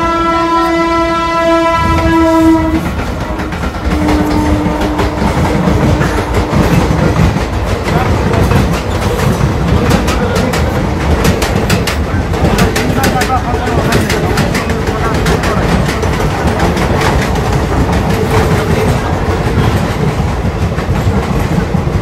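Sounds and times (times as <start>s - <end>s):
train horn: 0.0s - 7.2s
trains rumbling: 0.0s - 22.0s
wheels clattering over rail joints: 2.8s - 22.0s.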